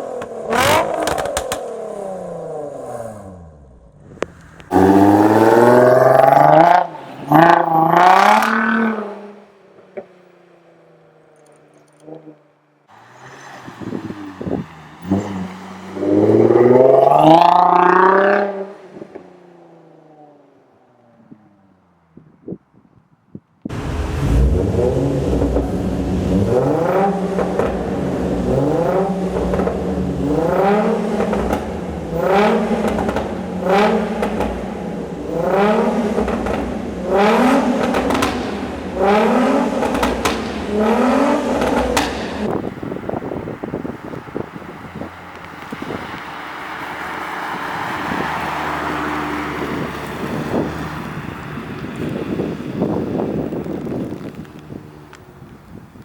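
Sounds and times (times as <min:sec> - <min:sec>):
exhaust pops: 0:00.0 - 0:01.8, 0:03.3 - 0:09.0, 0:23.7 - 0:47.0, 0:49.4 - 0:56.0
car engine revving: 0:00.0 - 0:20.7, 0:23.7 - 0:55.2.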